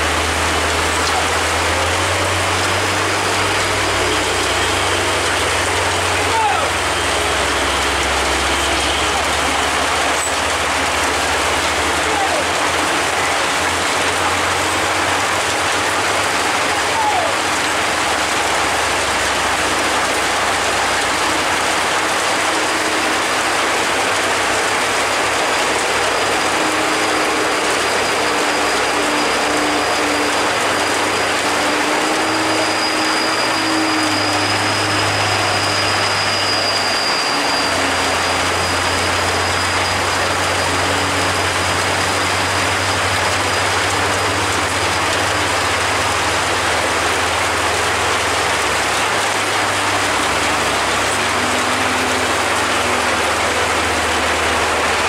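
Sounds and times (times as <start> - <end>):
road and rain hiss: 0.0 - 55.0
truck engine drone: 0.0 - 55.0.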